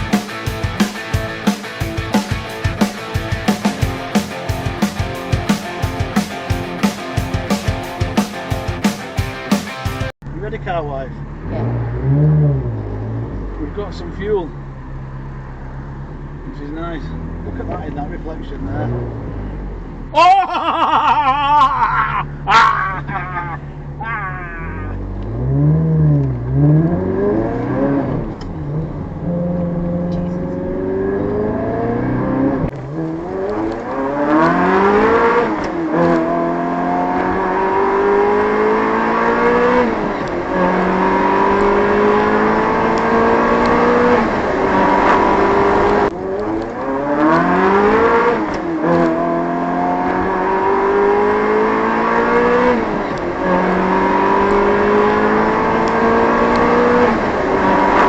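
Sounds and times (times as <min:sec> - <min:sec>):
engine revving through gears: 0:11.2 - 0:20.1, 0:24.8 - 0:58.0.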